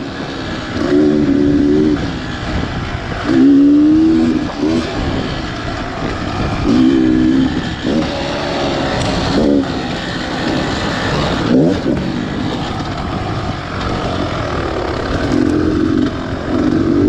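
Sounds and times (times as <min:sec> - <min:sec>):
steady rushing noise: 0:00.0 - 0:17.0
two-stroke engine revving: 0:00.0 - 0:17.0.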